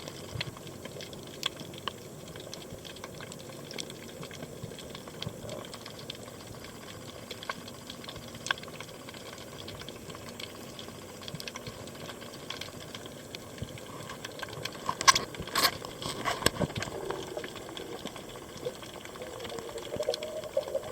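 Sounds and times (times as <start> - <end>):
bubbling: 0.0 - 20.9
underwater hiss: 13.4 - 20.9.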